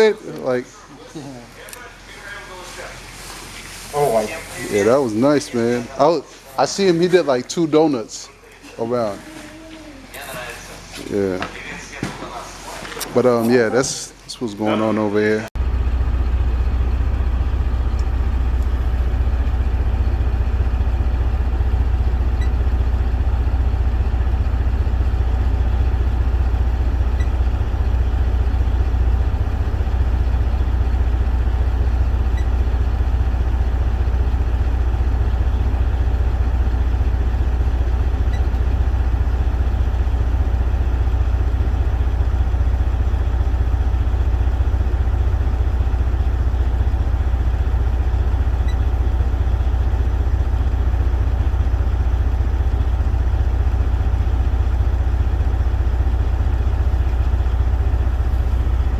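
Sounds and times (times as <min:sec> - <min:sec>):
vehicle engine idling: 0:15.6 - 0:58.9.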